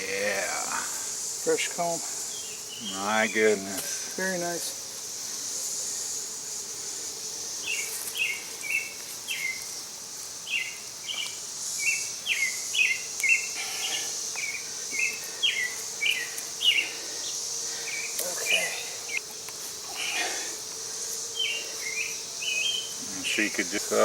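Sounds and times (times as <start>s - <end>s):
faint bee colony hum: 0.0s - 24.0s
high insect hiss: 0.0s - 24.0s
bird chirping: 2.3s - 3.6s, 7.6s - 9.7s, 10.4s - 19.2s, 21.3s - 23.0s.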